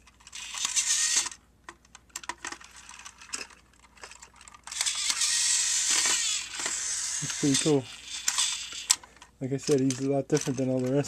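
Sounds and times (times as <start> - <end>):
toy train motor whirring: 0.1 - 1.4, 2.2 - 10.9.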